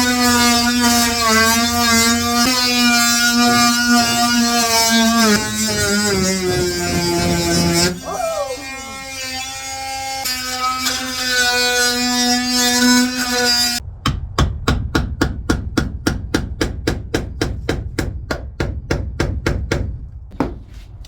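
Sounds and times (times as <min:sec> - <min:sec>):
power tool motor whining: 0:00.0 - 0:13.8
hammer blows: 0:00.1 - 0:09.4.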